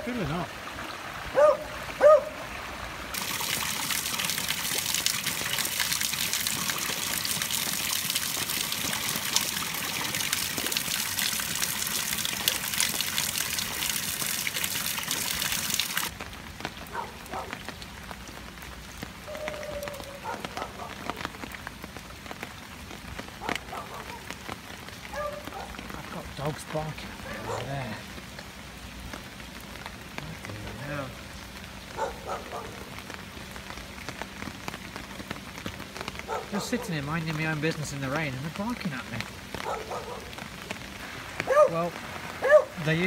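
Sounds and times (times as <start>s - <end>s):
heavy rain and running water: 0.0s - 43.0s
light rain: 0.0s - 43.0s
distant dog barking: 1.3s - 2.4s, 16.9s - 17.6s, 19.3s - 21.3s, 23.4s - 24.4s, 25.1s - 25.8s, 27.2s - 28.0s, 31.9s - 32.9s, 36.0s - 37.0s, 39.6s - 40.4s, 41.4s - 42.8s
water dripping: 3.1s - 26.9s.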